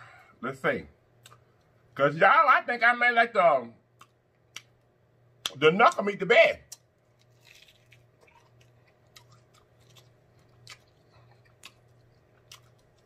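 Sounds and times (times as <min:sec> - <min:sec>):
low steady hum: 0:00.0 - 0:13.0
faint chewing: 0:06.7 - 0:13.0.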